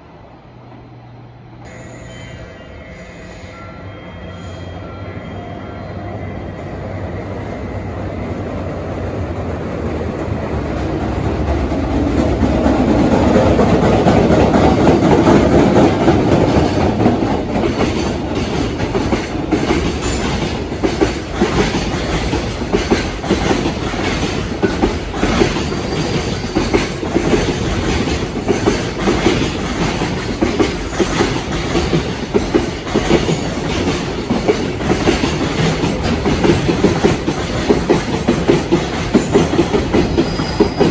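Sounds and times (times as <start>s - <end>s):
freight train passing: 0.0s - 40.9s
wheels clattering over rail joints: 10.7s - 40.9s.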